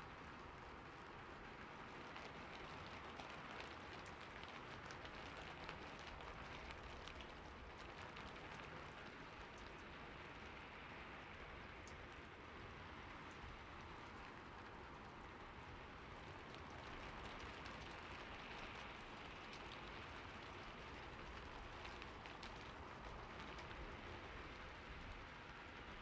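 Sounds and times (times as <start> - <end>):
rain falling on a roof: 0.0 - 26.0.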